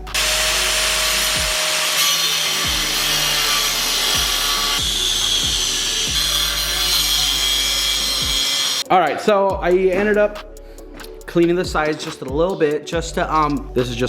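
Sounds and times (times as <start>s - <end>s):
background music with bass beat: 0.0s - 1.9s, 2.6s - 14.0s
angle grinder grinding steel: 0.0s - 8.9s.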